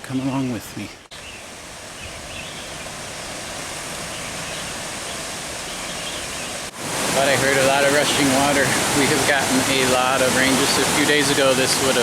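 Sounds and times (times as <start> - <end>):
stream rushing: 0.0 - 12.0.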